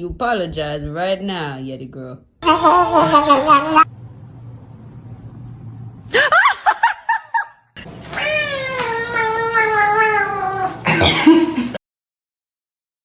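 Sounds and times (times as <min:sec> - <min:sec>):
cats meowing: 0:08.1 - 0:10.9.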